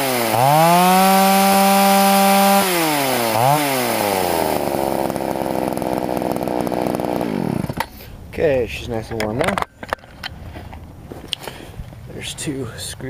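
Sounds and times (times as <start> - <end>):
chainsaw engine revving and idling: 0.0 - 7.9.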